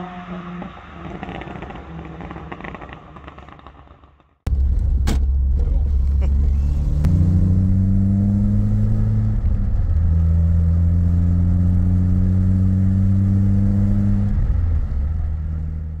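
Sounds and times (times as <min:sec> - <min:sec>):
car engine running: 0:04.5 - 0:16.0.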